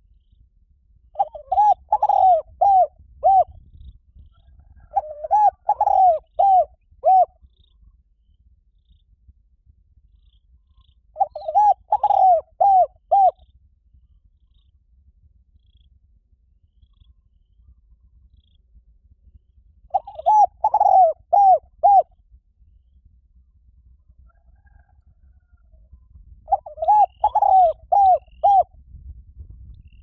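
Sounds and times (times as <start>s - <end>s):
dove cooing: 1.2s - 3.5s, 4.8s - 7.3s, 11.2s - 13.4s, 19.9s - 22.1s, 26.5s - 28.7s.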